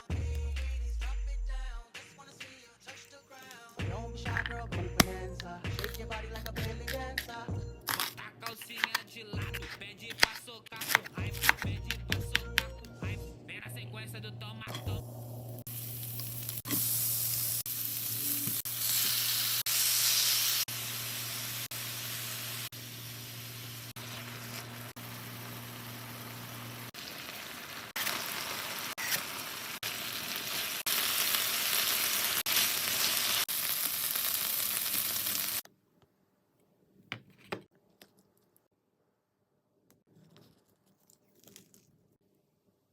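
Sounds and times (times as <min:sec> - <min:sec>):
food sizzling in a pan: 0:15.6 - 0:35.6.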